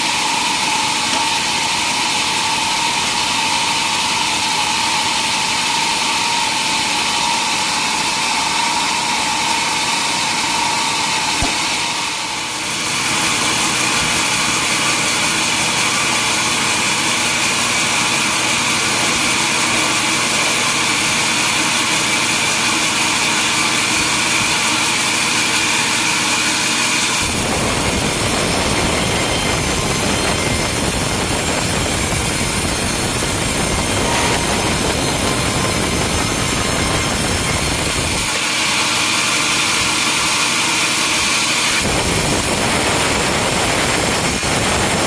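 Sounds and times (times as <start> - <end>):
saw whining: 0.0 - 45.0
sawmill machinery running: 0.0 - 45.0.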